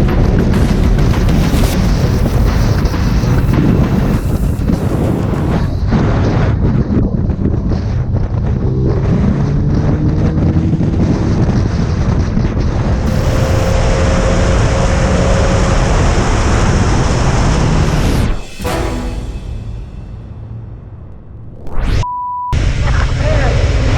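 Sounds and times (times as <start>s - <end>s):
wind buffeting microphone: 0.0s - 17.8s
motorcycle engine: 13.1s - 21.7s.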